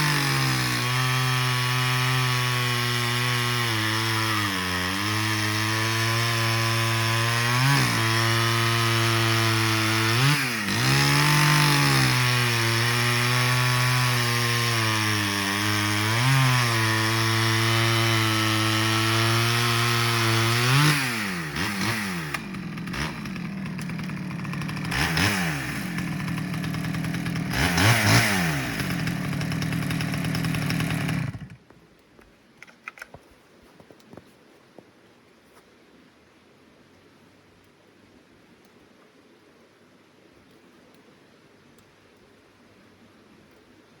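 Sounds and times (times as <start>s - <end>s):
chainsaw revving: 0.0s - 31.6s.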